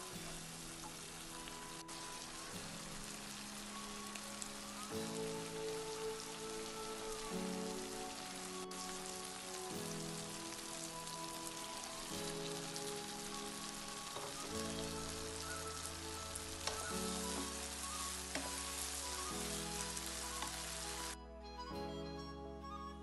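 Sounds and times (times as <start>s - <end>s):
food sizzling in a frying pan: 0.0s - 21.2s
soft background music: 0.0s - 23.0s.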